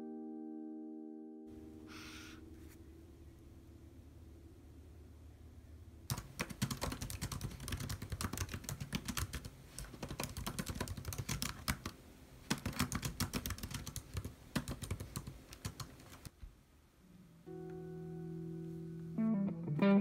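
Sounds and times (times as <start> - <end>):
fast typing on laptop keyboard: 6.1 - 16.3.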